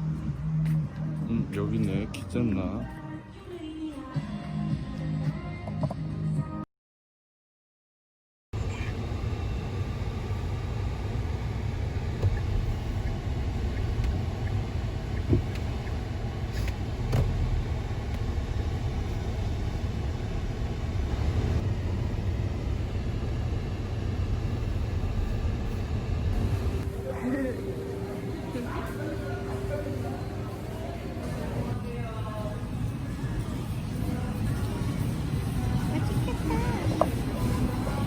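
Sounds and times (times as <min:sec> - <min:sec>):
moving car rumbling: 0:08.6 - 0:26.9.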